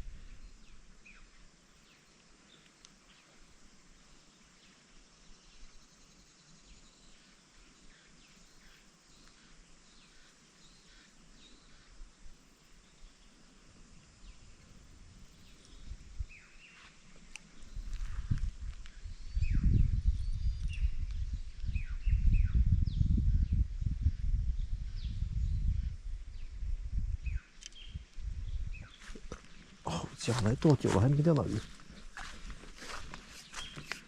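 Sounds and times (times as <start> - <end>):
bird chirps: 32.9 - 34.0.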